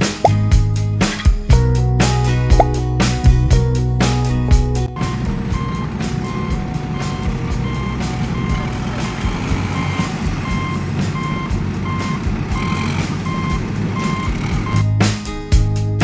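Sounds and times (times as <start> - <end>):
low engine rumble: 1.5 - 14.9
reversing alarm beeping: 5.0 - 14.9.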